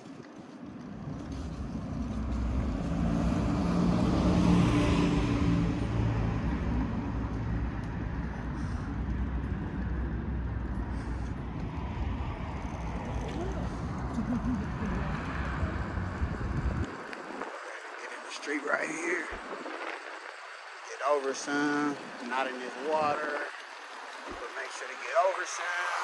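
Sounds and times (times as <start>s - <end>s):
road and wind noise: 0.0s - 26.0s
vehicle passing by: 0.9s - 16.9s.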